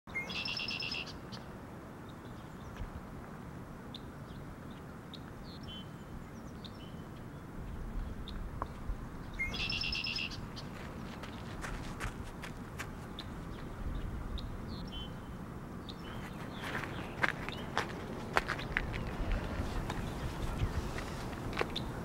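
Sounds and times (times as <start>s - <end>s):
songbird fast trill: 0.1s - 1.2s, 9.4s - 10.5s
bird chirps: 0.1s - 1.4s, 9.3s - 10.8s
low background noise: 0.1s - 22.0s.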